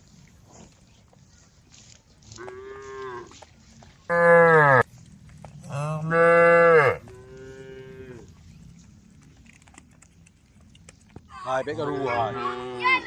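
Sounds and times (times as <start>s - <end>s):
cows mooing: 4.1s - 4.9s, 5.6s - 8.4s.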